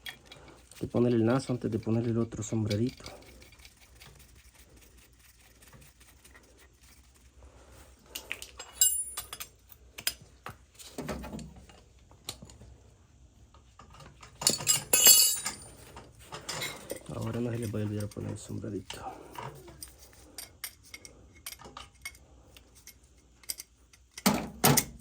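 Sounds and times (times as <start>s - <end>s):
metal parts and tools clinking: 8.1s - 10.2s, 14.2s - 18.5s, 19.3s - 24.9s.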